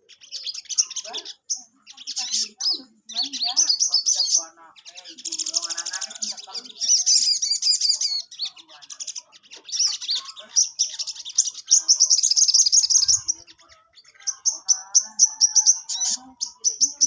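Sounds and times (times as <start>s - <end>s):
songbird chirping and trilling: 0.0s - 17.0s.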